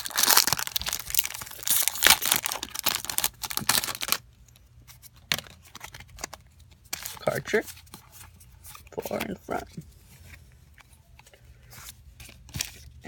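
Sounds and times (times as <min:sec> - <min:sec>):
foil pack crinkling and tearing: 0:00.0 - 0:04.2.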